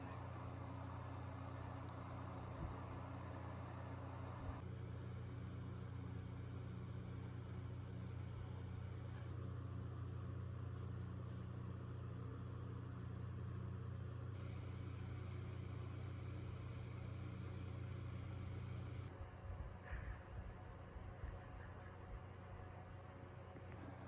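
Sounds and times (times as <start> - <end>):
vacuum cleaner running: 0.0 - 4.6.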